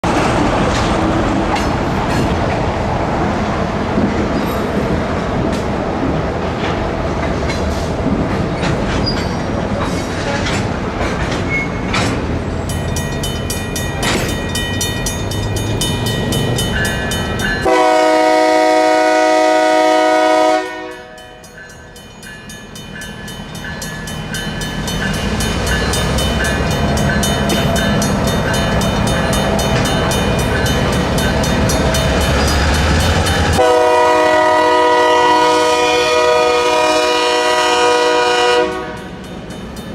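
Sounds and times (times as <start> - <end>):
train rumbling on rails: 0.0 - 39.9
crossing bell ringing: 12.4 - 39.9
locomotive horn blast: 17.6 - 21.2, 33.4 - 39.1.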